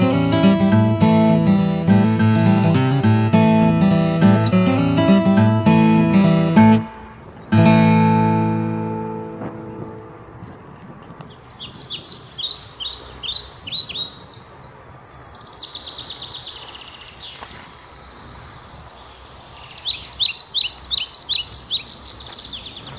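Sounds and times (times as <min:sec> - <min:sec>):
acoustic guitar chord: 0:00.0 - 0:10.4
songbird chirping: 0:10.8 - 0:22.9
bird trill: 0:11.3 - 0:17.4, 0:18.5 - 0:22.9.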